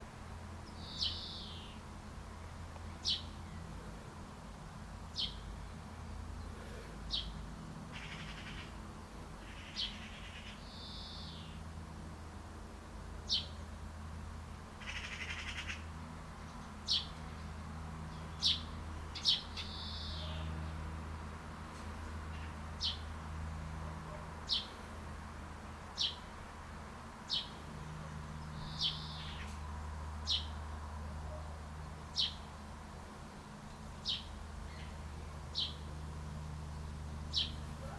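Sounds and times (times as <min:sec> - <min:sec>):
steady low hum: 0:00.0 - 0:37.9
birds chirping: 0:00.6 - 0:11.7, 0:13.2 - 0:13.9, 0:14.7 - 0:25.0, 0:25.6 - 0:37.9
raspy bird calls: 0:06.4 - 0:08.8, 0:09.4 - 0:11.6, 0:14.8 - 0:15.9, 0:18.2 - 0:20.6, 0:27.3 - 0:29.6, 0:37.3 - 0:37.9.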